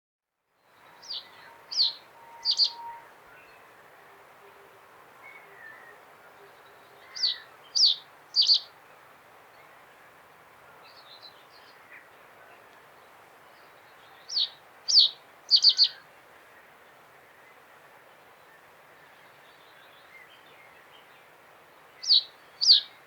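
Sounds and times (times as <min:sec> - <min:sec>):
faint steady hiss: 0:00.4 - 0:23.0
bird singing sharp notes: 0:01.0 - 0:03.1.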